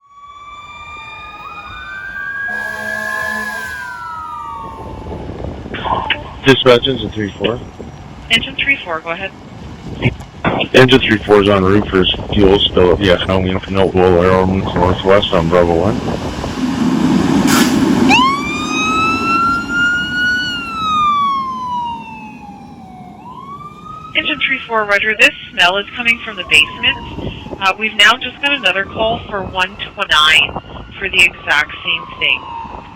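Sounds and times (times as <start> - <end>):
fire engine siren wailing: 0.0 - 32.9
truck rumble: 0.3 - 32.7
low steady horn blare: 2.4 - 4.2.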